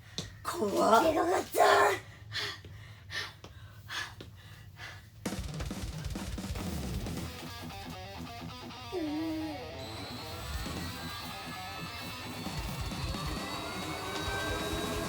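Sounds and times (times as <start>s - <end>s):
music with drum kit: 5.2s - 9.0s, 9.6s - 15.0s.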